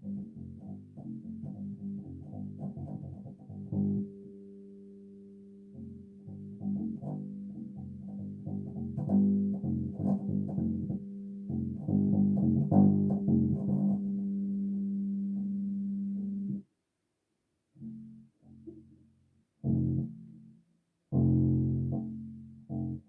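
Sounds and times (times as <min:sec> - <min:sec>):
bass guitar plucked notes: 0:00.0 - 0:04.1, 0:05.7 - 0:16.6.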